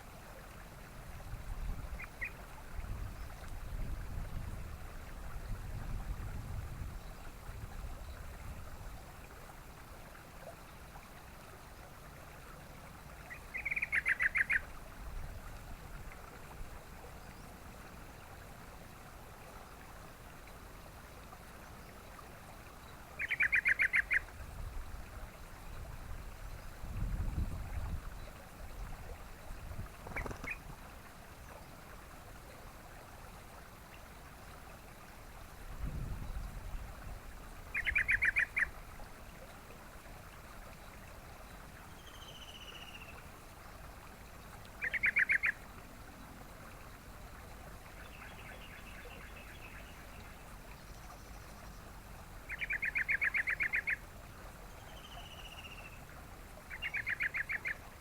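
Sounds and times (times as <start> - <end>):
bird bubbling chatters: 13.3 - 14.6, 23.2 - 24.3, 30.0 - 30.8, 37.7 - 38.7, 44.8 - 45.6, 52.5 - 54.0, 56.7 - 57.8.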